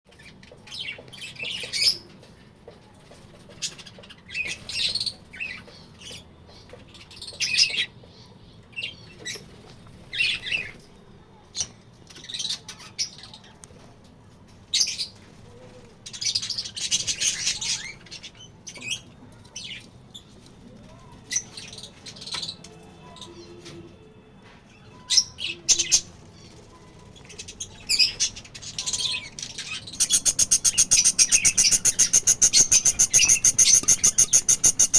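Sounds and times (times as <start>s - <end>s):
budgerigars chirping: 27.5s - 34.9s.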